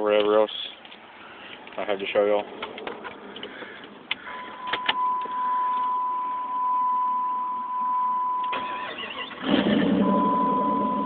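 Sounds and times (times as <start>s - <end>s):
loud engine without muffler: 8.5s - 11.0s
high-pitched electronic beep: 10.0s - 11.0s.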